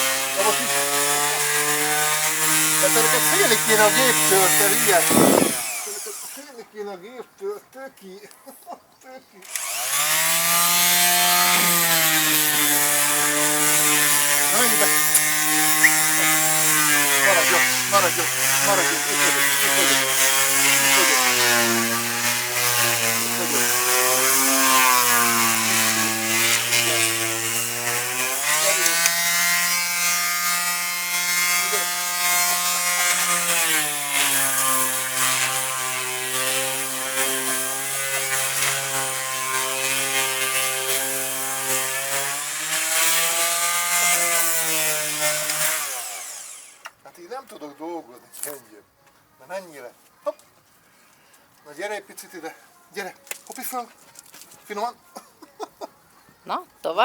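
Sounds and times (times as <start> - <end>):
electric power tool cutting wood: 0.0 - 6.6, 9.4 - 47.0.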